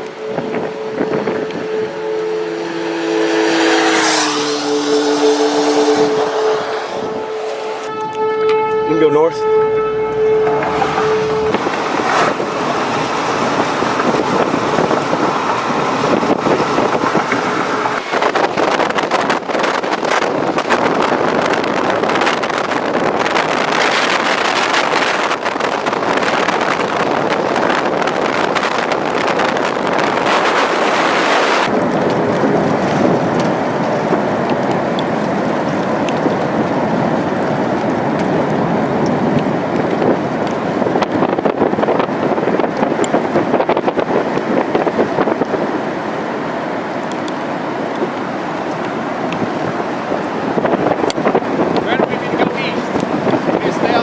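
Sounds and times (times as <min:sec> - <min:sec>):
strong wind buffeting microphone: 0:00.0 - 0:54.0
tornado warning siren: 0:00.0 - 0:54.0.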